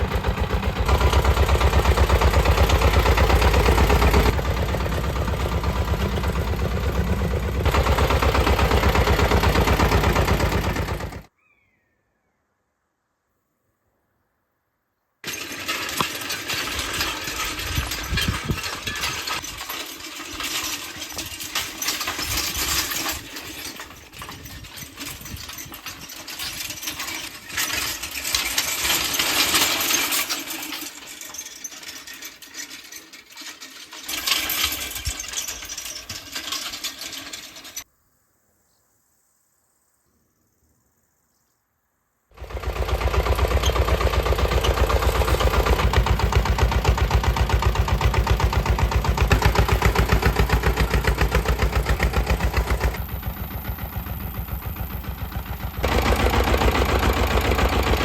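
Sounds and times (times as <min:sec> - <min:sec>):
engine running steadily: 0:00.0 - 0:11.3, 0:42.4 - 0:58.0.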